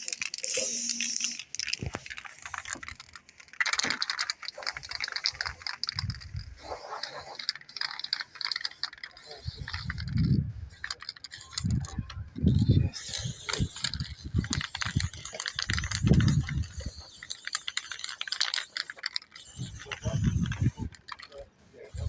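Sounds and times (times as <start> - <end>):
small hard objects clicking: 0.0 - 22.0
dull low thumps: 10.0 - 10.7.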